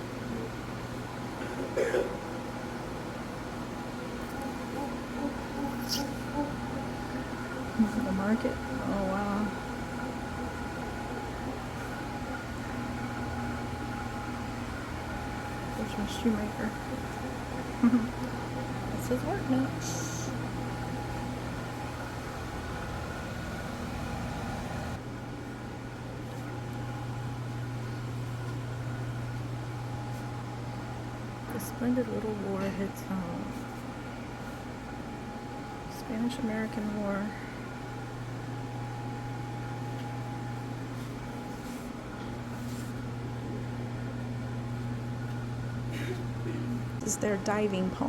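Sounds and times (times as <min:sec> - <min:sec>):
low room hum: 0:00.0 - 0:48.0
soft rustles: 0:40.9 - 0:43.1.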